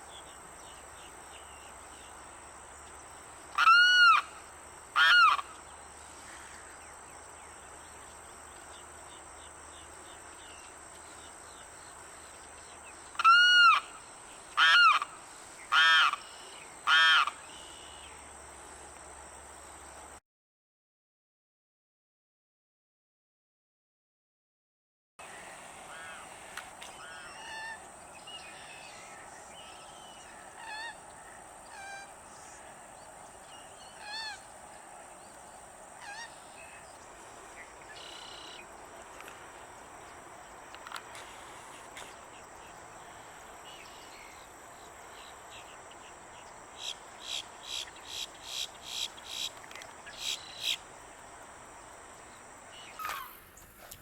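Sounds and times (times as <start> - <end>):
bird wailing honk-like calls: 3.6 - 4.3, 5.0 - 5.5.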